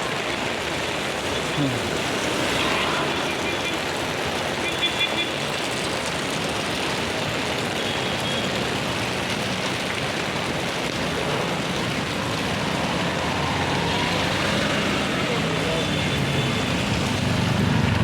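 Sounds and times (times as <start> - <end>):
road traffic: 0.0 - 18.0
steady rain: 0.0 - 18.0
vehicle engine droning: 12.1 - 18.0.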